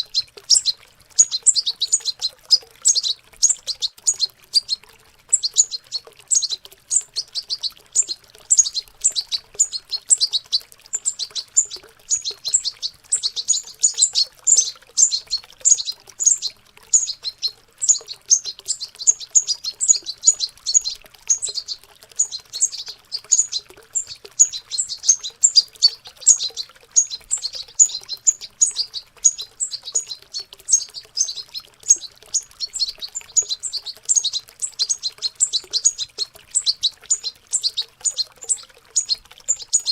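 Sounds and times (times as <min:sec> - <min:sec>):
young birds chirping and twittering: 0:00.0 - 0:39.9.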